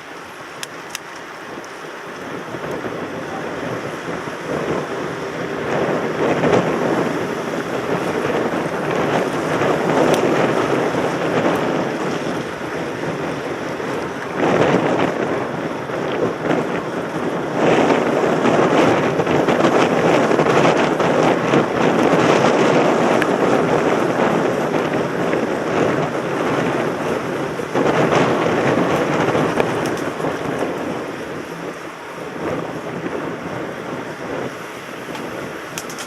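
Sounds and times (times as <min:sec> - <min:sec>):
wind rushing over microphone: 0:00.0 - 0:36.0.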